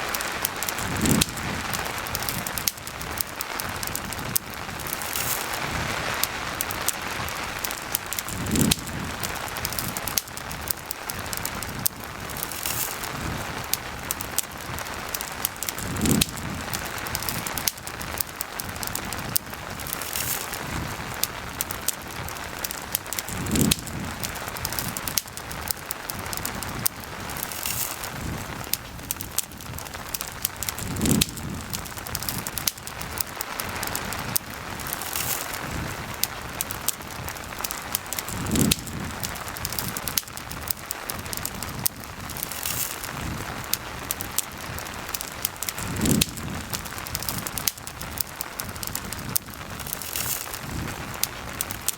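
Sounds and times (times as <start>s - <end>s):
campfire crackling and popping: 0.0s - 51.9s
steady rain: 0.0s - 51.9s.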